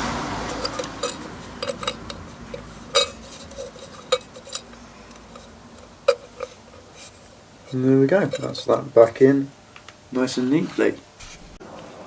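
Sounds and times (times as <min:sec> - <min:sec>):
small metallic clicks and clinks: 0:00.5 - 0:08.7.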